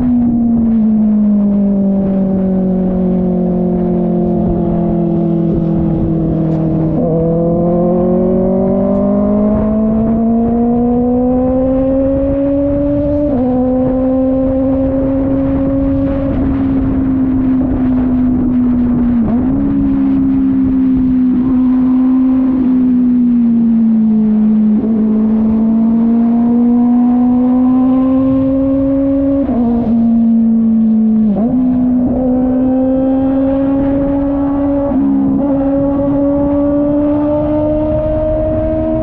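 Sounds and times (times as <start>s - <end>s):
motorcycle engine cruising: 0.0s - 39.0s.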